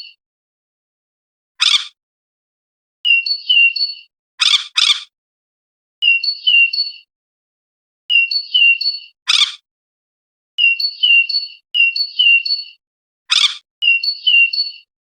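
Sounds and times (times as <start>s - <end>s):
harsh rasping bird calls: 1.6s - 2.0s, 3.1s - 5.1s, 8.2s - 9.6s, 13.3s - 14.6s
robin singing whistled notes: 3.1s - 4.1s, 6.0s - 7.1s, 8.1s - 9.2s, 10.6s - 12.8s, 13.8s - 14.9s.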